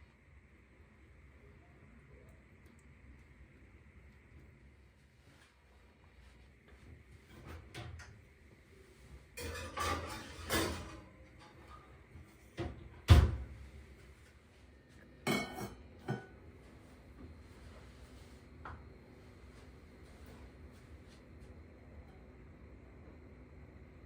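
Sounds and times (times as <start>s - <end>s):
dishes and utensils clinking: 9.4s - 11.8s, 15.3s - 16.4s.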